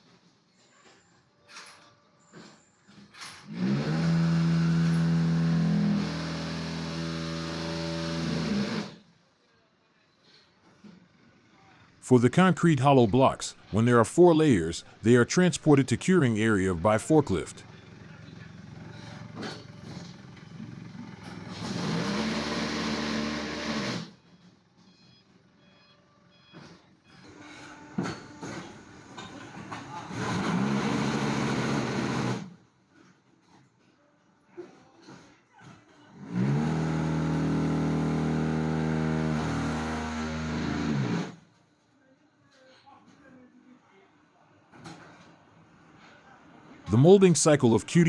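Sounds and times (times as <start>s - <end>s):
reversing beeps: 24.8s - 27.2s.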